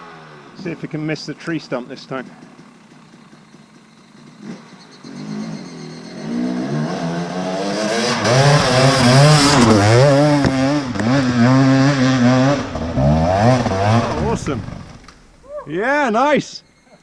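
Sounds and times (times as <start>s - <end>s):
motorcycle engine revving hard: 0.0s - 0.9s, 3.3s - 15.1s.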